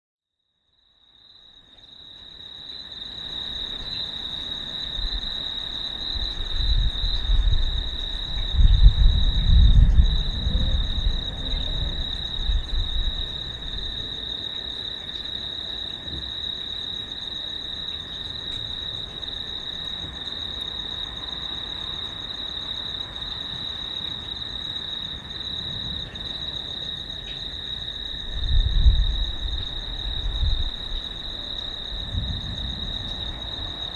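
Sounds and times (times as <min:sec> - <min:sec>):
insects chirring: 0:01.1 - 0:33.9
rolling thunder: 0:06.0 - 0:14.2, 0:28.0 - 0:33.9.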